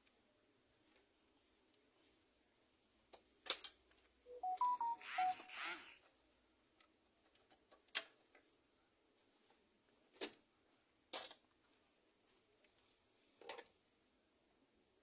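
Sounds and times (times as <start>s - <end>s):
phone beeps: 4.3s - 5.8s.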